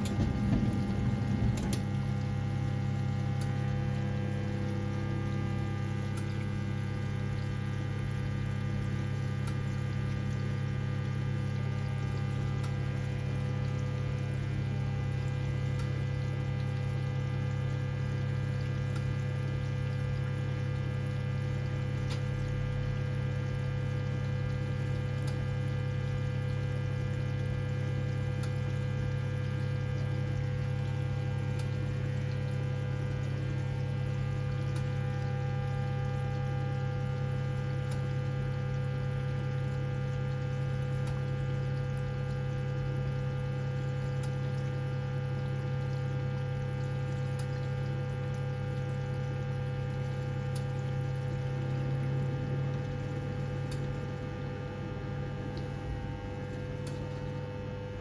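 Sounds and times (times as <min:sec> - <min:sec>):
water rushing: 0:00.0 - 0:02.1
washing machine humming: 0:00.0 - 0:58.0.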